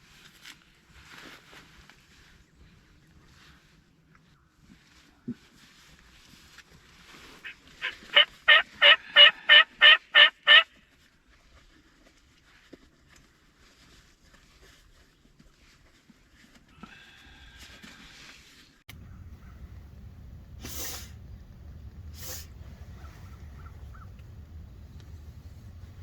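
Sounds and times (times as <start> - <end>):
turkey call yelps: 7.4 - 10.7, 18.9 - 19.8, 22.8 - 24.7.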